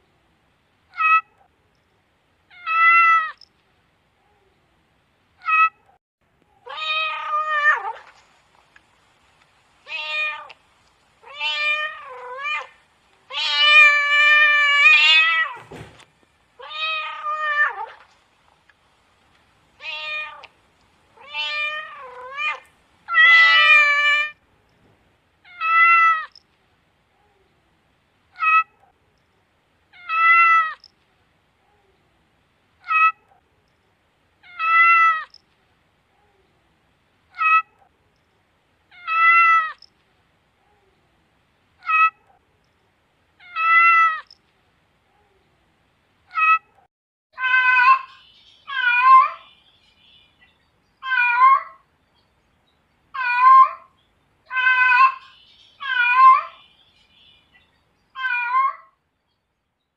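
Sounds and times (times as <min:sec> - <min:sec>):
cat meowing: 0:00.9 - 0:01.4, 0:02.5 - 0:03.4, 0:05.4 - 0:05.9, 0:06.6 - 0:08.1, 0:09.9 - 0:10.5, 0:11.2 - 0:15.6, 0:16.6 - 0:18.0, 0:19.8 - 0:20.5, 0:21.2 - 0:24.4, 0:25.4 - 0:26.4, 0:28.4 - 0:28.8, 0:29.9 - 0:30.9, 0:32.8 - 0:33.3, 0:34.4 - 0:35.4, 0:37.3 - 0:37.8, 0:38.9 - 0:39.9, 0:41.8 - 0:42.4, 0:43.4 - 0:44.4, 0:46.3 - 0:46.8, 0:47.4 - 0:49.5, 0:51.0 - 0:51.8, 0:53.2 - 0:53.9, 0:54.5 - 0:56.6, 0:58.2 - 0:59.0.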